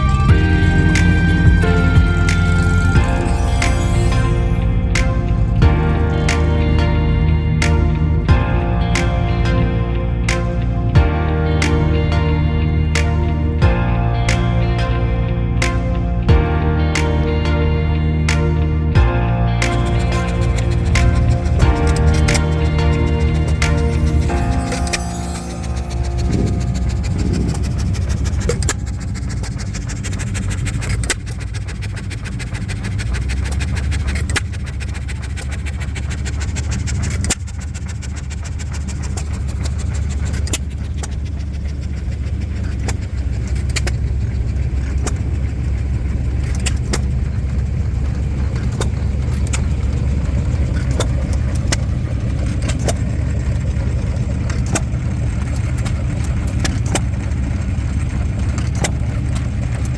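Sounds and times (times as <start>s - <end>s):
engine rumbling: 0.0s - 59.9s
sharp clicks: 19.6s - 57.6s.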